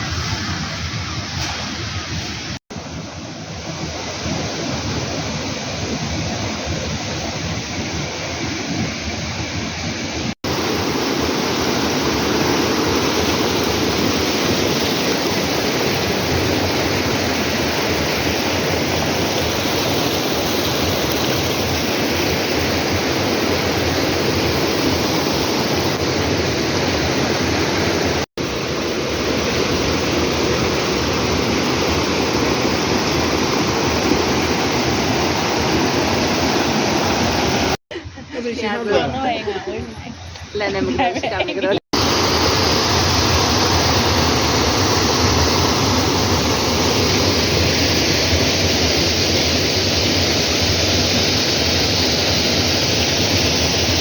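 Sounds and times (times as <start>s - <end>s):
waterfall rushing: 10.1s - 37.8s, 41.9s - 54.0s.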